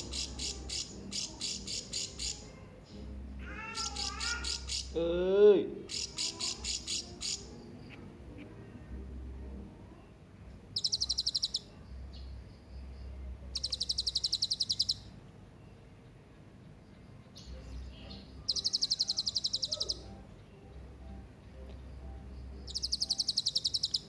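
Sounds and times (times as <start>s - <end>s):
parrot calling: 0.0s - 2.4s, 3.4s - 5.0s, 5.8s - 7.5s, 10.8s - 11.8s, 13.5s - 15.1s, 18.1s - 20.2s, 22.6s - 24.0s.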